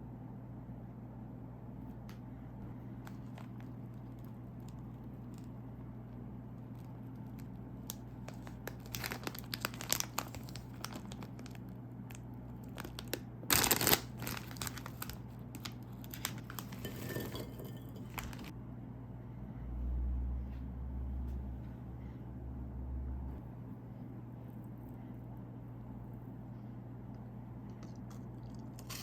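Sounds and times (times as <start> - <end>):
plastic wrapper crinkling: 3.0 - 5.6, 6.6 - 18.5
snack bag tearing open: 7.3 - 11.6, 12.6 - 16.9.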